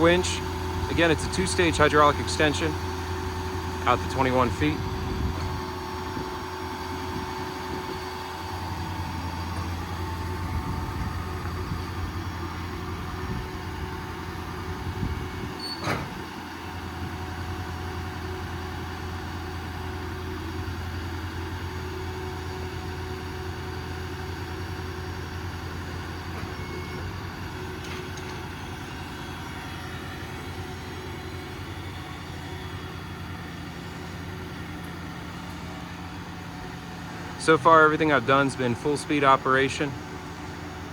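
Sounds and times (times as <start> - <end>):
diesel engine running: 0.0 - 40.9
faint hydraulic whine: 14.8 - 16.3, 26.2 - 39.2.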